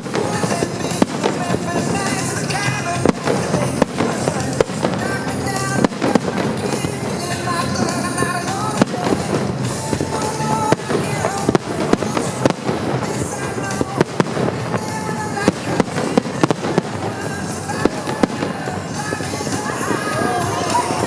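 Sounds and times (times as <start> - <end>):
fireworks banging and crackling: 0.0 - 21.0
music: 0.0 - 21.0.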